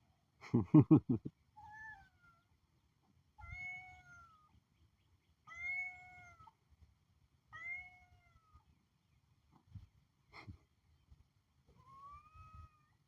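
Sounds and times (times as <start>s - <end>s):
cat meowing: 3.4s - 4.5s, 5.5s - 6.5s, 7.6s - 8.6s, 11.8s - 13.0s.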